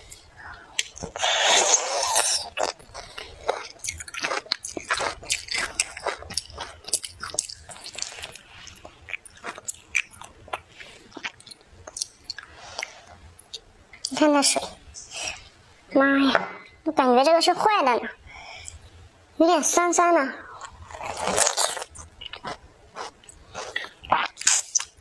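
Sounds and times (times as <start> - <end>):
wet chewing with mouth clicks: 0.8 - 14.2.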